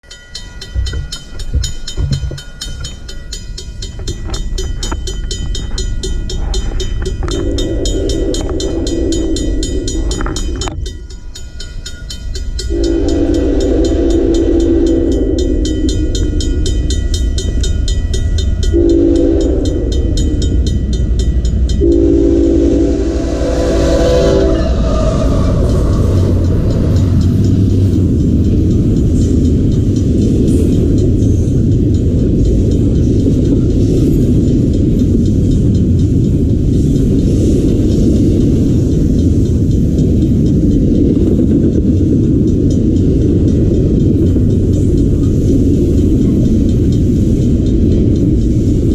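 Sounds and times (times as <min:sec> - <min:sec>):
crossing signal bell ringing: 0:00.0 - 0:48.9
train rumbling: 0:00.0 - 0:48.9
locomotive horn blasts: 0:12.7 - 0:15.5, 0:18.8 - 0:20.0, 0:21.8 - 0:27.2.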